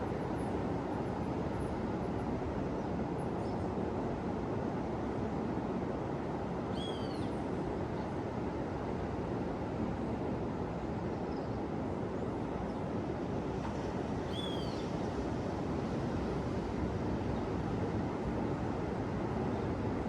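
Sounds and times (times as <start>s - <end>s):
ocean surf washing on beach: 13.1s - 20.0s.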